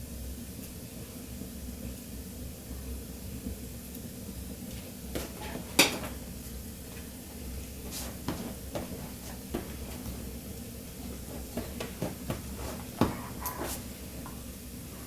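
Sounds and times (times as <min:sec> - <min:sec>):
light knocks taps and scuffs: 0:07.8 - 0:10.3, 0:11.0 - 0:14.4.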